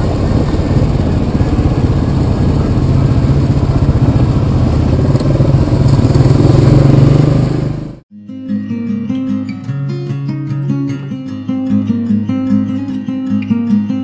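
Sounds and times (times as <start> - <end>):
atv engine running: 0.0 - 8.0.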